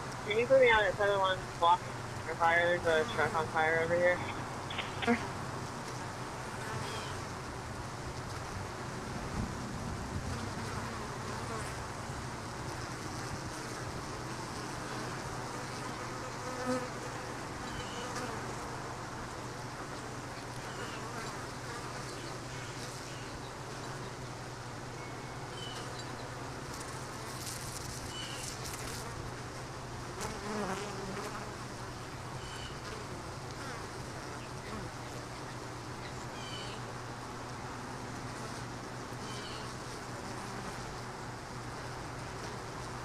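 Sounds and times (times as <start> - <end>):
bees buzzing: 0.0 - 24.3.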